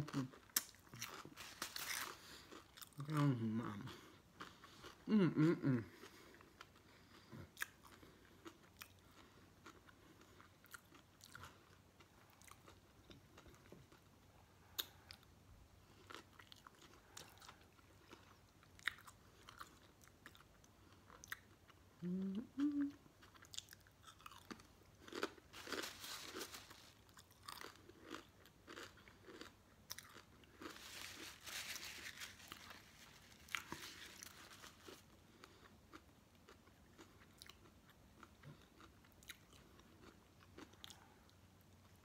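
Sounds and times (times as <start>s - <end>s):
chewing with wet smacks: 23.1s - 25.3s, 35.3s - 42.0s.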